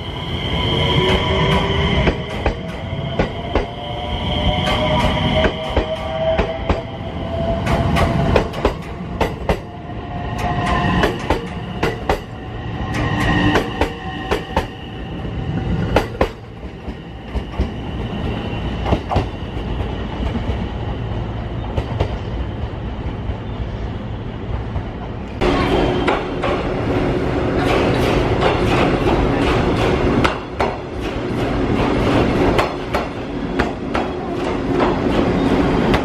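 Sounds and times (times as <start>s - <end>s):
train whine and squeal: 0.0s - 36.0s
train wheels clicking over rail joints: 7.6s - 9.7s, 10.4s - 12.3s, 26.0s - 36.0s.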